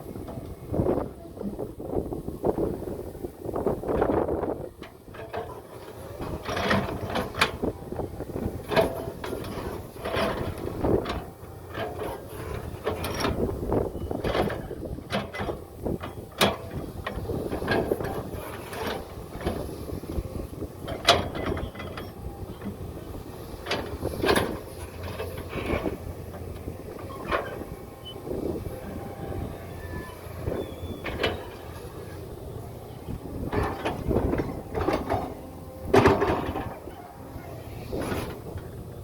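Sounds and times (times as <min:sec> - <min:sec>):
heavy machinery engine rumble: 0:00.0 - 0:39.0
metal clanks and knocks: 0:04.8 - 0:07.7, 0:08.6 - 0:32.3, 0:33.1 - 0:37.1.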